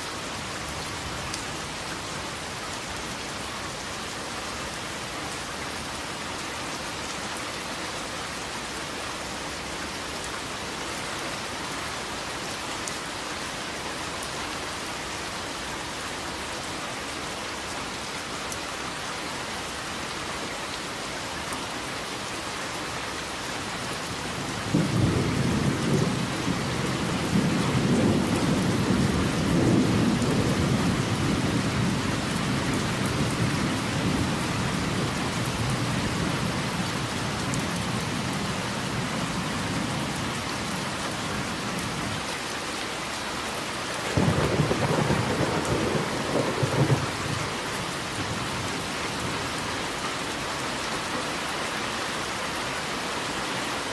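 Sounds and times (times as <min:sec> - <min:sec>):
steady rain: 0:00.0 - 0:53.9
thunder rumbling: 0:44.1 - 0:48.7.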